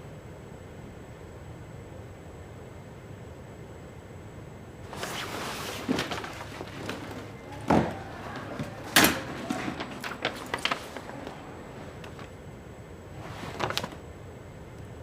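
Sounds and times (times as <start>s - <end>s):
rustling: 4.9s - 12.4s, 13.1s - 14.0s.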